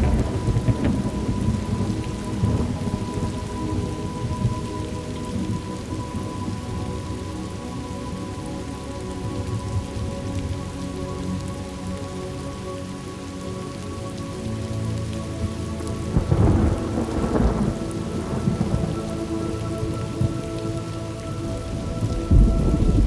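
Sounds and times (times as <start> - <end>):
thunder rumbling: 0.0 - 6.6, 16.1 - 20.4, 21.3 - 23.0
steady low tones: 0.0 - 12.2
steady rain falling: 0.0 - 23.0.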